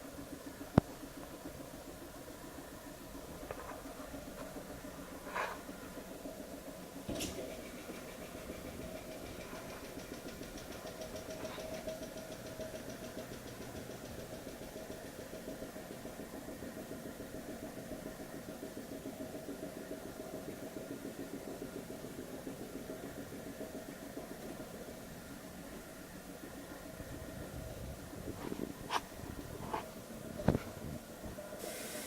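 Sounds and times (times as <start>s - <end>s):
vacuum pump pulsing: 0.0s - 32.0s.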